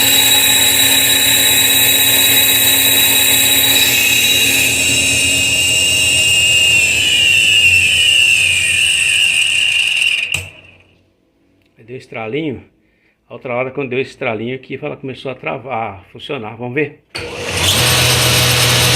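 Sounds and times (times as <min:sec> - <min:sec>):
alternator spinning with high whine: 0:00.0 - 0:10.9.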